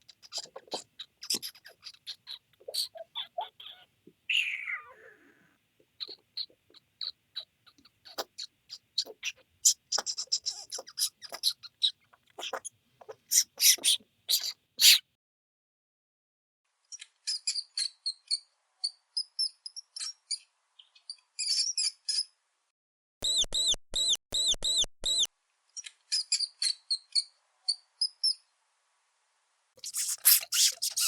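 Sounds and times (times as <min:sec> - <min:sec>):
mouse squeaking: 0:00.0 - 0:15.0, 0:29.8 - 0:31.0.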